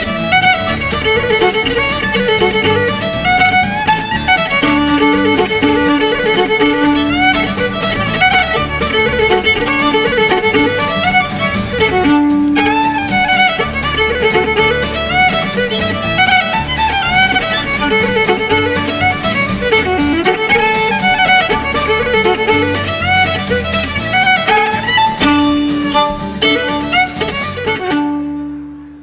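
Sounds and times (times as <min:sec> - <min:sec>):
fiddle playing fast dance tune: 0:00.0 - 0:29.0
rhythmic accompaniment: 0:00.0 - 0:29.0.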